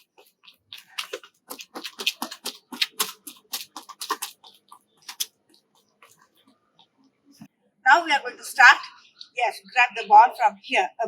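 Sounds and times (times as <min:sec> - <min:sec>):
rapid footsteps: 0:00.0 - 0:06.6.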